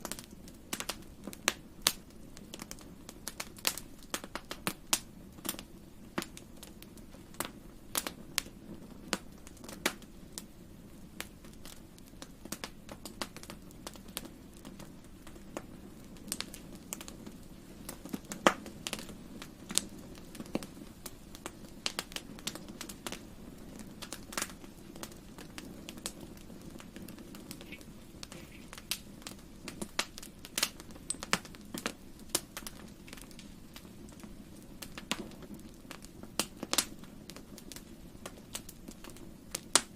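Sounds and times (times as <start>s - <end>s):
low rumble of flames: 0.0s - 39.9s
wood fire crackling: 0.0s - 39.9s
sharp pops and snaps: 24.0s - 39.9s.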